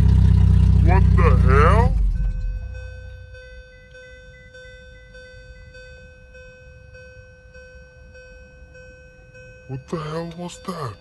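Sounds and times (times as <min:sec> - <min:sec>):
faint low rumble: 0:00.0 - 0:03.9
car warning chime dinging: 0:00.1 - 0:11.0.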